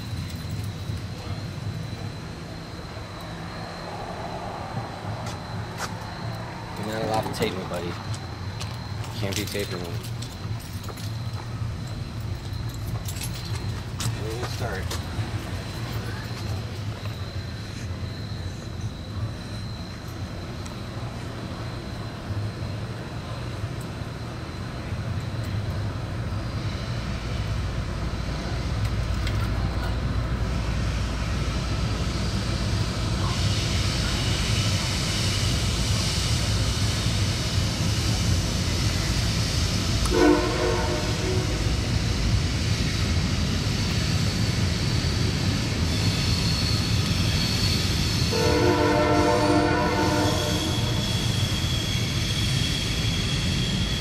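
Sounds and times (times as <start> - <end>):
high squeal: 0.0 - 27.6, 30.0 - 54.0
train rumbling past: 0.0 - 54.0
train horn: 40.0 - 41.8, 48.3 - 51.3.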